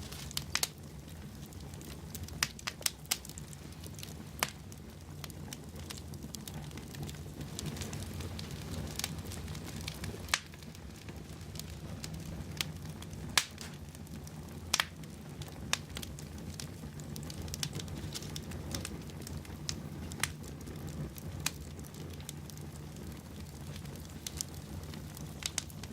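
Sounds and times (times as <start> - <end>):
burning logs crackling and popping: 0.0 - 25.9
fire flames rumbling: 0.0 - 25.9.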